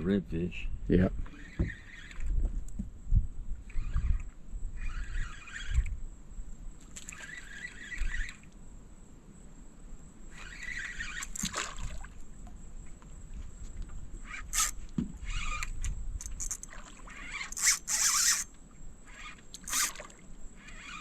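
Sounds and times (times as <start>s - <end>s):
water splashing and sloshing: 6.8s - 8.5s, 10.4s - 14.1s, 14.8s - 21.0s.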